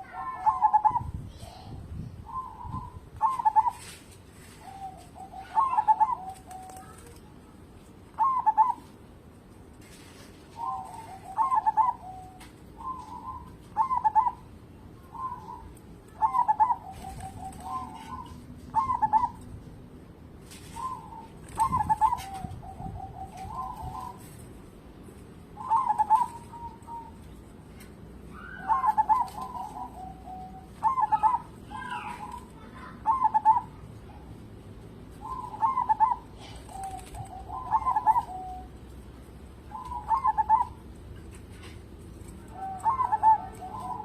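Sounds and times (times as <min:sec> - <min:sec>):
dove staccato coos: 0:39.7 - 0:44.0.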